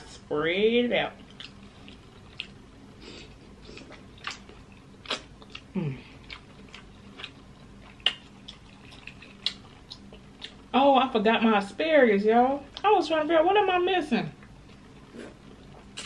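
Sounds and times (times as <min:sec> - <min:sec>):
chewing: 0:01.2 - 0:10.6
low voice hum: 0:05.7 - 0:06.2
wet mouth smacks: 0:08.0 - 0:10.6.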